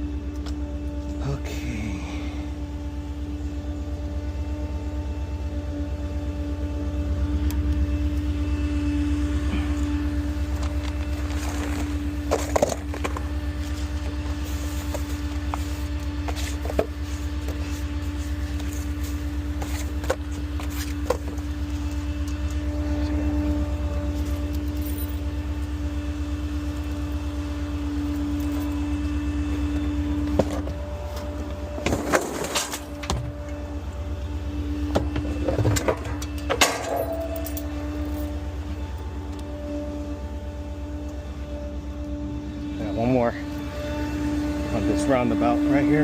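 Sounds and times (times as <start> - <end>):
constant whine: 0.0 - 46.0
garbage truck engine running: 0.0 - 46.0.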